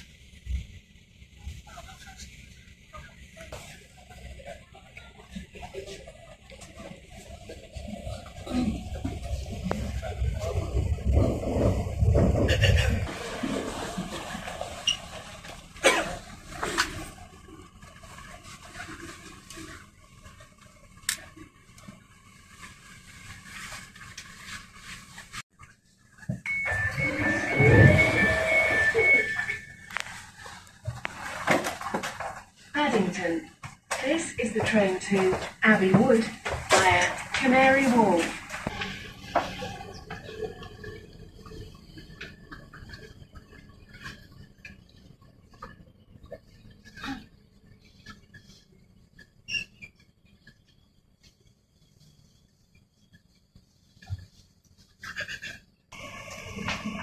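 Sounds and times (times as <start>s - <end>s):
train carriage low rumble: 0.0s - 25.4s.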